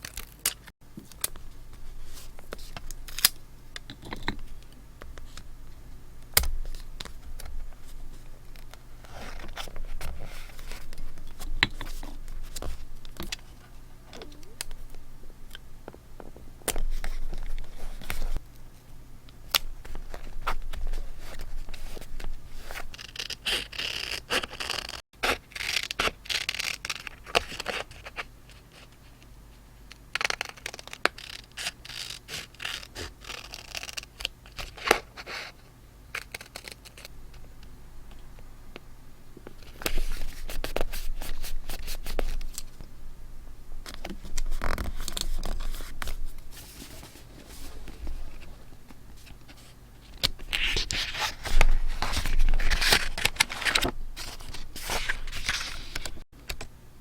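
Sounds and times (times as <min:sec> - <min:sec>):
paper rustling and scraping: 0:06.6 - 0:14.3, 0:39.6 - 0:42.8, 0:43.9 - 0:56.2.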